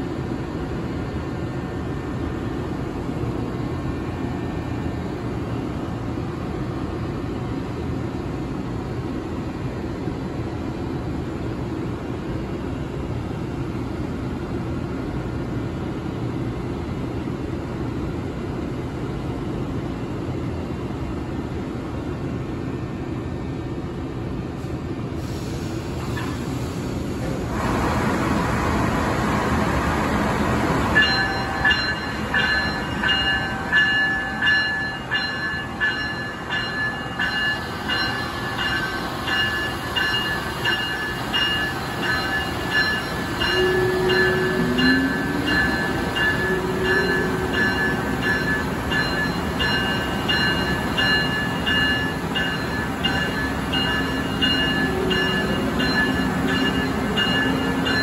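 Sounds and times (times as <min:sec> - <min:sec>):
locomotive rumble: 0:25.9 - 0:58.0
bell ringing: 0:31.0 - 0:58.0.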